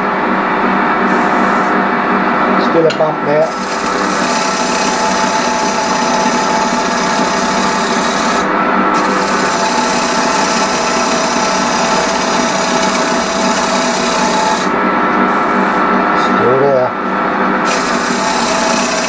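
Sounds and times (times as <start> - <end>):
lathe hum: 0.0 - 19.0
lathe tool rasping wood: 3.4 - 15.8, 17.6 - 19.0.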